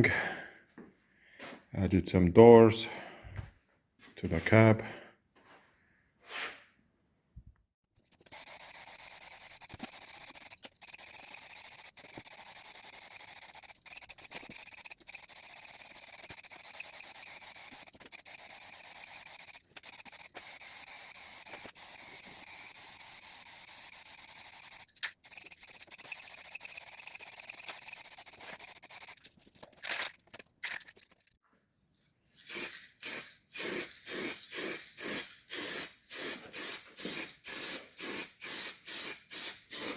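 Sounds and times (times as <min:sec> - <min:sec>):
spray paint hissing: 0:08.0 - 0:29.3, 0:32.4 - 0:39.9.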